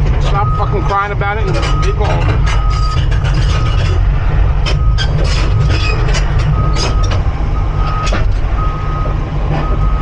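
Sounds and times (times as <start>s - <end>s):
excavator diesel engine running: 0.0s - 10.0s
travel alarm beeping: 0.4s - 3.8s, 4.7s - 5.2s, 6.5s - 10.0s.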